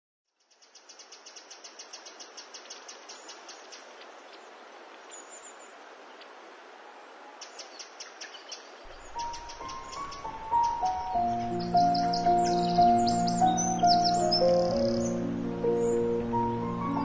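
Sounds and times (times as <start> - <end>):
small bird chirping: 0.3 - 4.5, 7.4 - 15.2.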